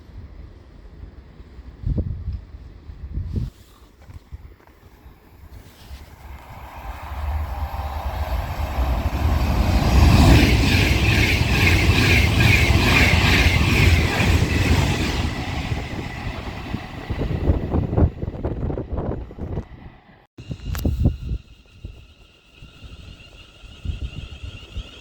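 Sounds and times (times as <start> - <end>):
train passing with rhythmic clatter: 0.0 - 3.4, 4.1 - 25.0.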